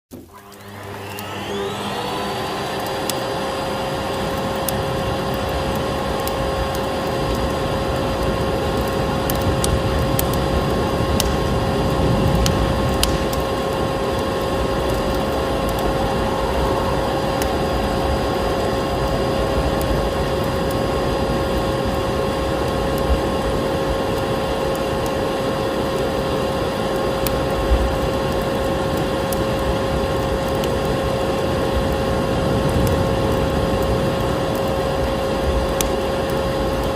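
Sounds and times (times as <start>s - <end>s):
vacuum cleaner motor whining: 0.1s - 27.5s
wood fire crackling and popping: 0.4s - 36.9s.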